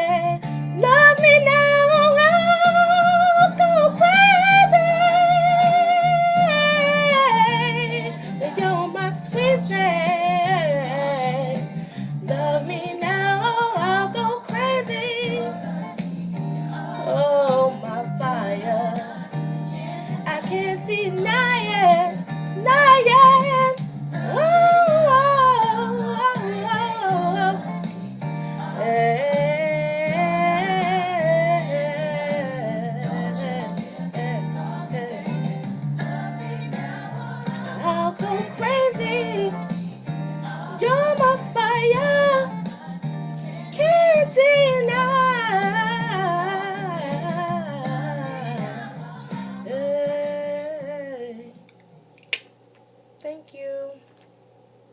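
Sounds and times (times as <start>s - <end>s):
sharp click: 51.7s - 52.9s.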